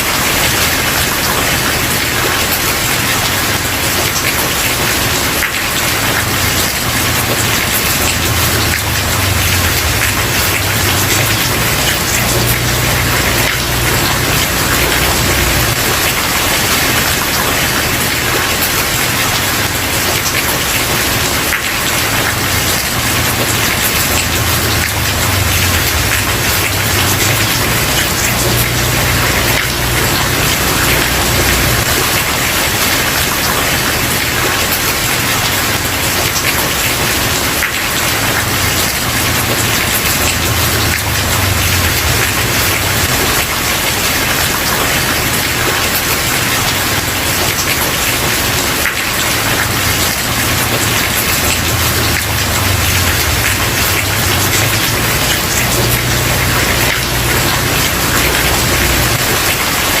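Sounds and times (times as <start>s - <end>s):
heavy rain on wooden porch: 0.0s - 60.0s.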